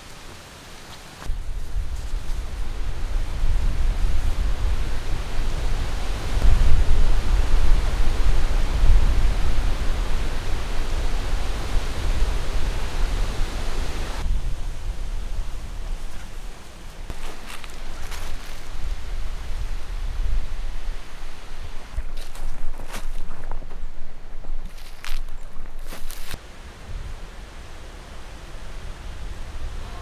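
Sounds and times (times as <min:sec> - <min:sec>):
strong wind gusting: 0:01.2 - 0:30.0
wind buffeting microphone: 0:01.2 - 0:30.0.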